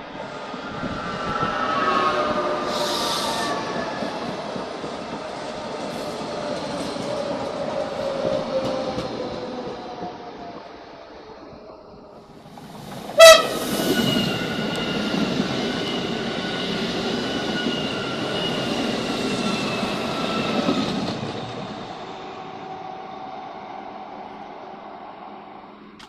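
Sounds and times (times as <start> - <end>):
train rumbling past: 0.0 - 26.0
train horn blast: 13.2 - 14.3.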